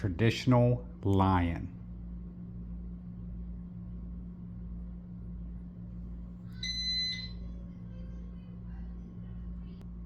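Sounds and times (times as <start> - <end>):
steady low hum: 0.0 - 10.0
high electronic beep: 6.6 - 7.4.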